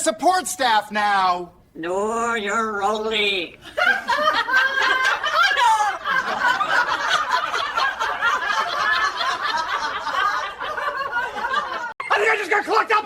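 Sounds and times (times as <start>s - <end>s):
person laughing: 3.8s - 6.5s.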